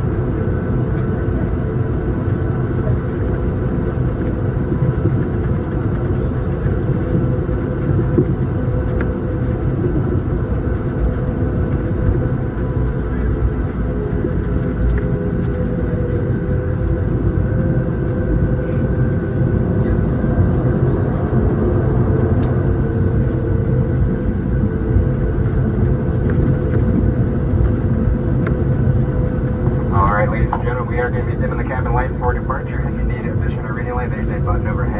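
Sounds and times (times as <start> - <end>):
aircraft engines idling hum: 0.0 - 34.9
air conditioning running: 25.3 - 34.9.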